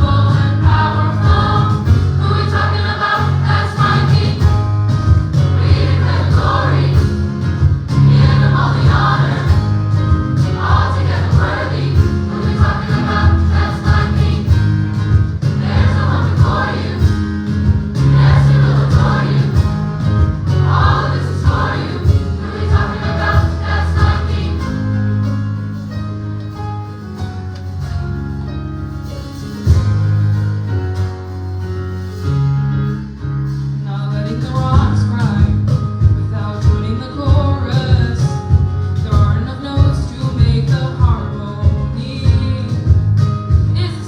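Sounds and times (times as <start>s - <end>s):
choir singing: 0.0s - 4.6s, 5.4s - 7.2s, 8.0s - 14.9s, 15.5s - 25.0s
instrumental accompaniment: 0.0s - 44.0s
sustained bass notes: 0.0s - 44.0s.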